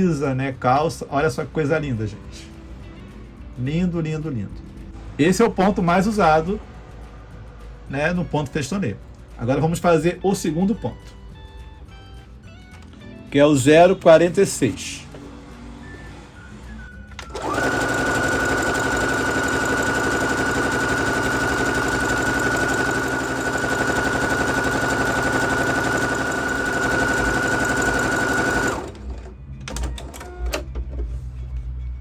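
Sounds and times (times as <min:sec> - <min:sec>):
sewing machine whining: 0:17.1 - 0:30.5.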